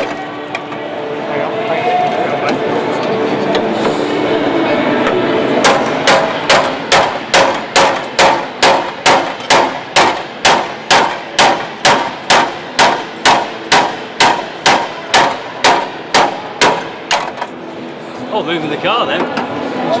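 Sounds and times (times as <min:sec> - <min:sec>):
hammer striking chisel on steel: 0:05.6 - 0:17.5.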